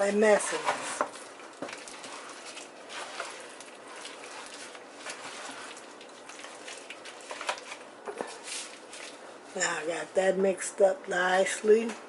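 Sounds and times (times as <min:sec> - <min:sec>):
chicken rubbed in dry flour: 0:01.8 - 0:07.8.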